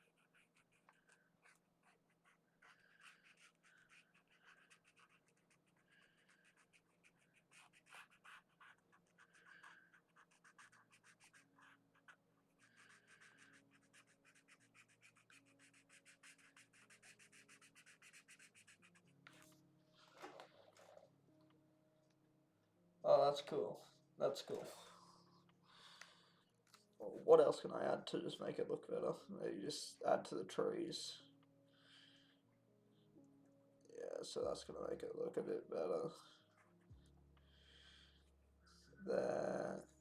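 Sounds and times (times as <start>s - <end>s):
pen scratching on paper: 0.0s - 19.5s.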